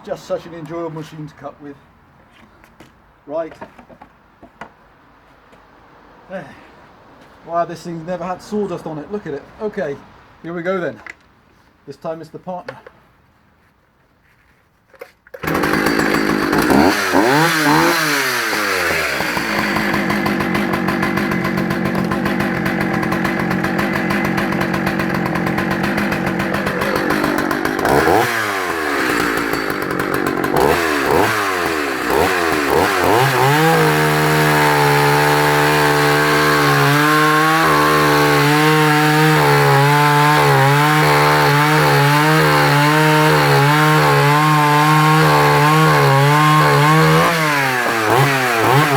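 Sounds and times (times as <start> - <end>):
chainsaw cutting log: 15.3 - 48.9
chainsaw idling and revving: 15.4 - 48.9.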